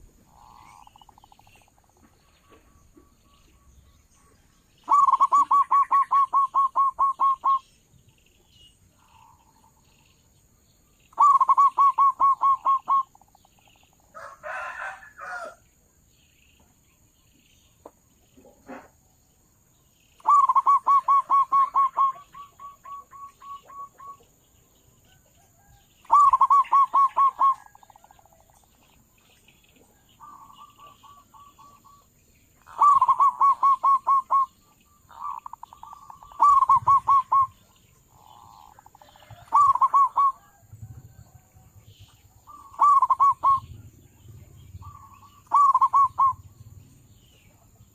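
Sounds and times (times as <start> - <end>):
dove cooing: 0.0 - 1.7, 4.9 - 7.7, 11.1 - 13.4, 20.2 - 24.4, 25.1 - 28.5, 29.9 - 47.7.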